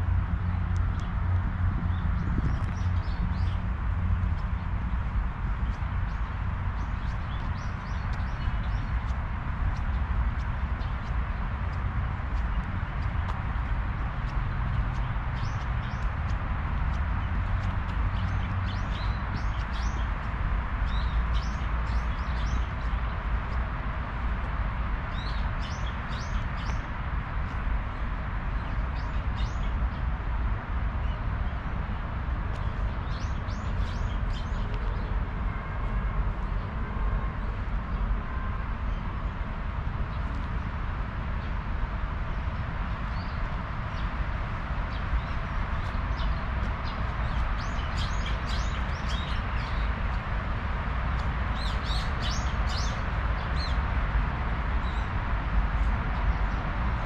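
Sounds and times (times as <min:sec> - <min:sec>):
steady low rumble and hiss: 0:00.0 - 0:57.0
small birds chirping: 0:00.4 - 0:23.6, 0:25.1 - 0:30.1, 0:32.5 - 0:34.8, 0:44.9 - 0:50.2, 0:51.1 - 0:53.8.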